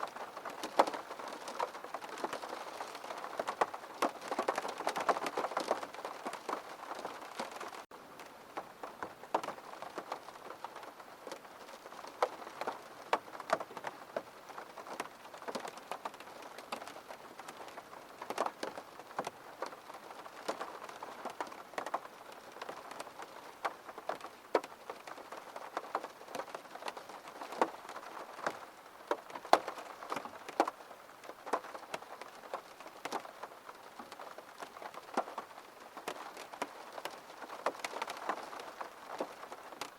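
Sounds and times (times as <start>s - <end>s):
faint hiss of rain: 0.0s - 39.9s
raindrops tapping on glass: 31.4s - 39.9s.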